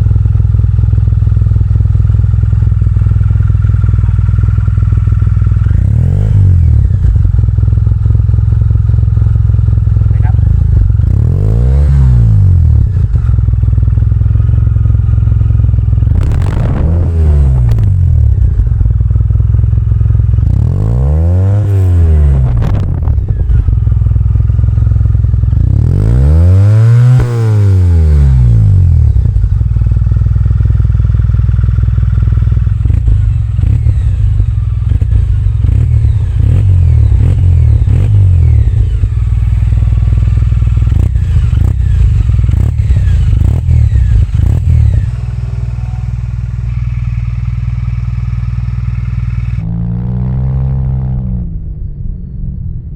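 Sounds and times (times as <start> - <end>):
motorcycle engine idling and revving: 0.0 - 52.9.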